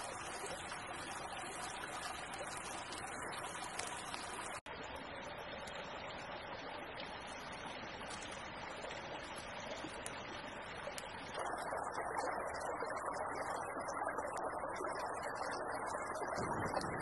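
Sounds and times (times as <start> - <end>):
creek water rushing: 0.0 - 4.6.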